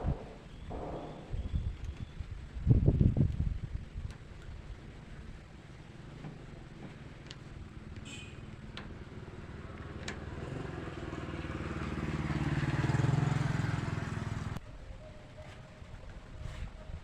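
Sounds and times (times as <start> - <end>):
engine running: 0.0 - 2.1, 5.5 - 14.6.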